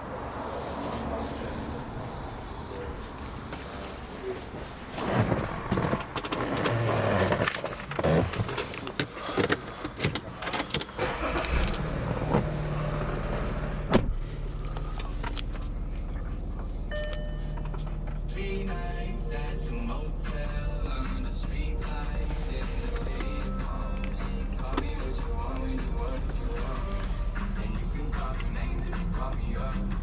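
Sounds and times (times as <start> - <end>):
handling and rustling noises: 2.6 - 11.5
car engine idling: 10.9 - 30.0.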